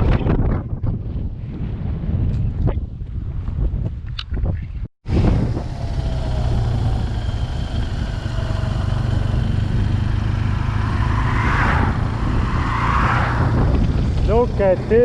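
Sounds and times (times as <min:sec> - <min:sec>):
motorcycle engine droning: 0:05.1 - 0:15.0.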